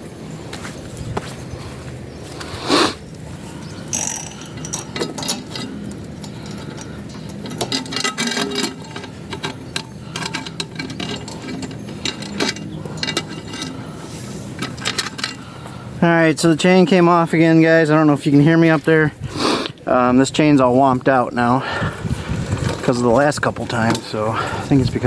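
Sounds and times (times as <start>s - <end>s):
metallic clicking and clattering: 3.6s - 15.7s, 22.4s - 25.0s.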